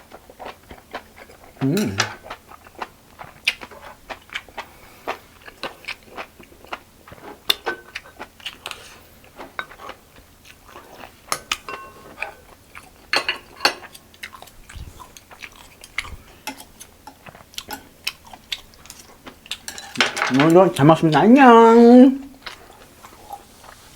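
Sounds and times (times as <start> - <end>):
crunchy chewing of food: 0.0 - 13.1, 13.8 - 19.7, 22.3 - 23.9
cutlery clinking on dishes: 1.7 - 2.2, 7.5 - 8.0, 11.3 - 12.4, 13.0 - 14.0, 15.8 - 17.9, 19.6 - 20.8.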